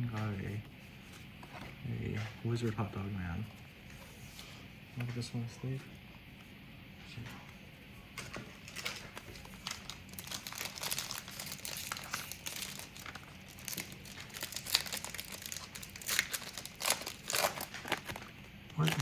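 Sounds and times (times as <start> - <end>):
plastic wrapper crinkling and tearing: 8.5 - 19.0.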